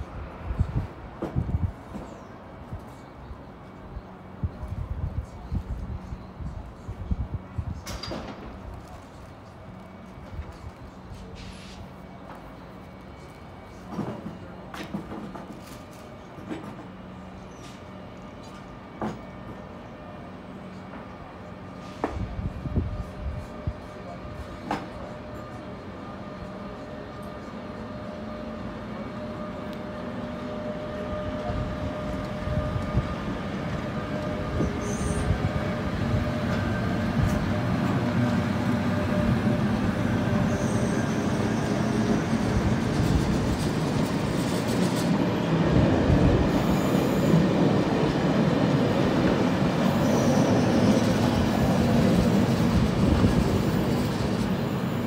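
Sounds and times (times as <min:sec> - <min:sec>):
train wheels rumbling on rails: 0:00.0 - 0:03.1, 0:03.7 - 0:55.0
high-pitched wheel squeals: 0:34.6 - 0:35.3, 0:40.4 - 0:42.4.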